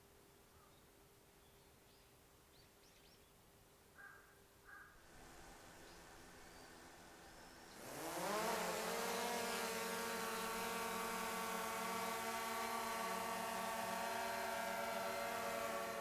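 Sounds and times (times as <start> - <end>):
drone motors whining: 5.0 - 16.0.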